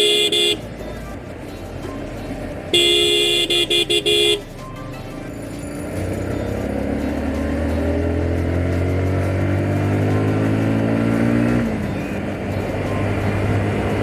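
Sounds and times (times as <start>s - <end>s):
motorcycle engine accelerating: 5.4s - 14.0s.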